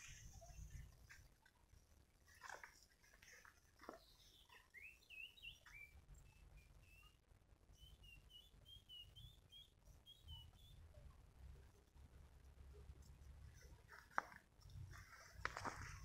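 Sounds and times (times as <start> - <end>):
bird chirps and whistles: 4.2 - 7.2, 7.8 - 10.8
faint low rumble: 5.6 - 16.0.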